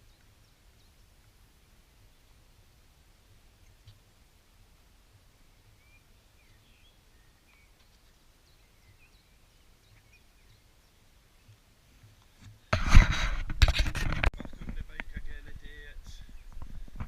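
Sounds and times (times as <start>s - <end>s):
faint bird chirps: 5.4s - 12.7s.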